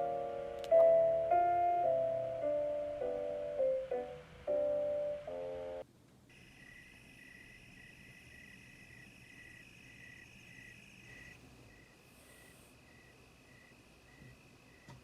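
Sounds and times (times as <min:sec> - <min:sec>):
piano music: 0:00.0 - 0:05.8
high insect trill: 0:06.3 - 0:14.9
insect chirping: 0:06.3 - 0:15.0.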